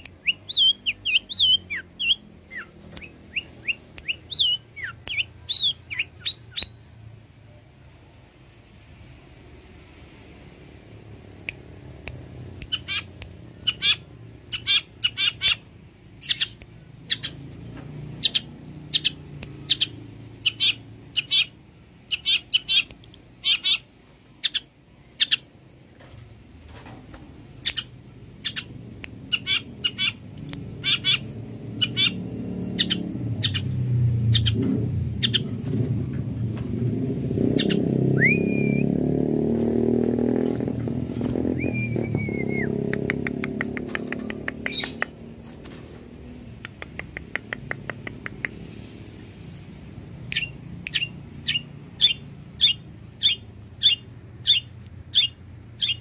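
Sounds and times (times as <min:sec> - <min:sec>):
shrike singing: 0:00.0 - 0:06.8, 0:37.5 - 0:39.0, 0:41.4 - 0:42.9.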